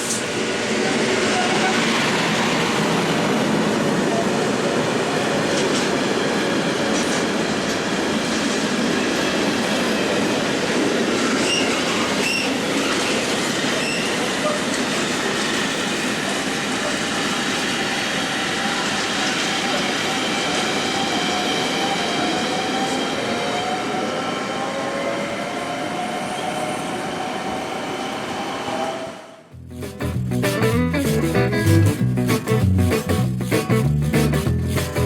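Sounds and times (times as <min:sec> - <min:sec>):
train wheels rumbling on rail: 0:00.0 - 0:30.5
high wheel squeals: 0:11.4 - 0:14.8.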